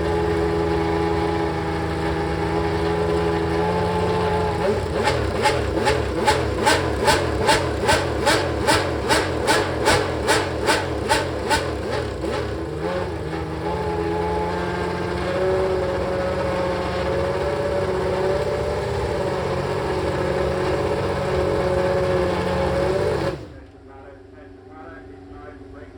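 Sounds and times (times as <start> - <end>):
racing engine revving and idling: 0.0 - 25.9.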